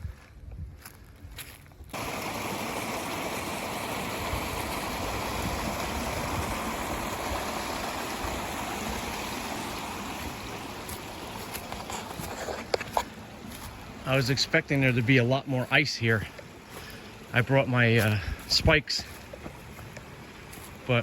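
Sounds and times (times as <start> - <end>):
stream water rushing: 1.9 - 21.0.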